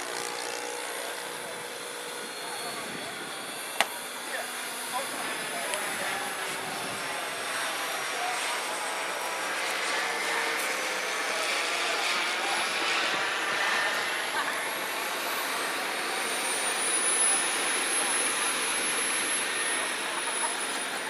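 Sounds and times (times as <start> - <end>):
jet engine rush with high whine: 0.0 - 21.0.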